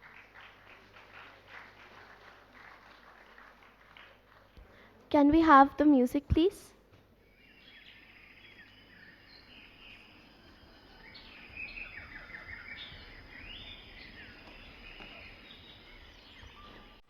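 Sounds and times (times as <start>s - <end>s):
steady background noise: 0.0s - 17.0s
birds chirping faintly: 6.9s - 17.0s.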